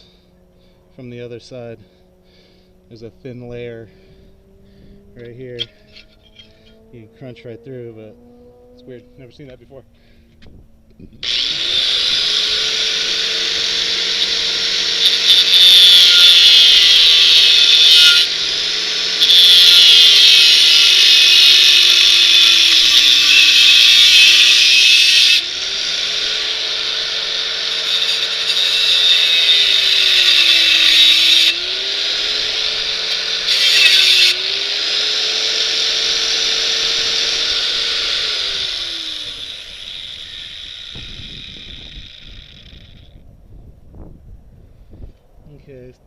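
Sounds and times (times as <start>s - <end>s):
angle grinder cutting steel: 11.2s - 43.2s.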